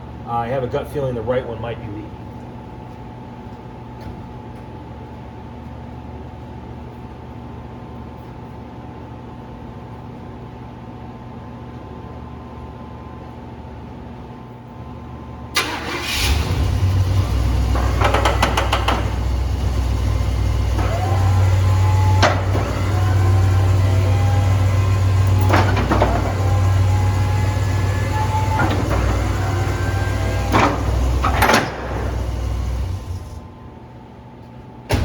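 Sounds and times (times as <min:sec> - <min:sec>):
truck engine starting and running: 0:15.5 - 0:33.7
short rising hydraulic whines: 0:15.6 - 0:33.7.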